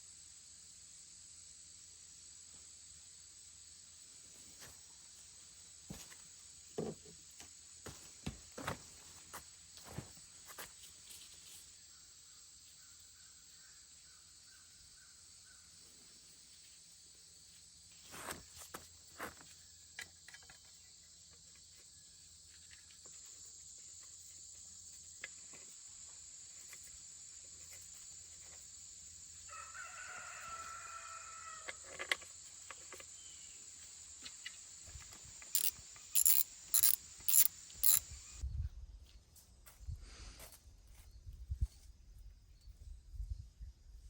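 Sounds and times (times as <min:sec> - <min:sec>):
hand ratchet clicking: 0:35.6 - 0:38.1.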